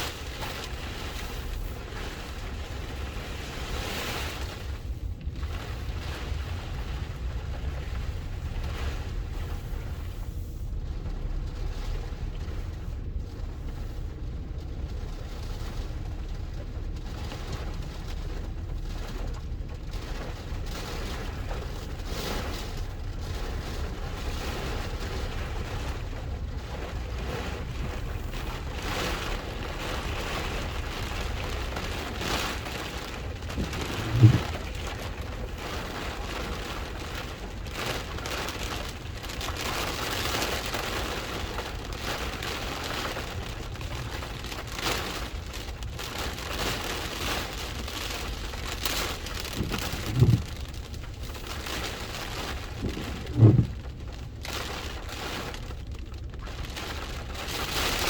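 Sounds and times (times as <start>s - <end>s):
low rumble: 0.0s - 58.0s
rain and wind rushing: 0.0s - 58.0s.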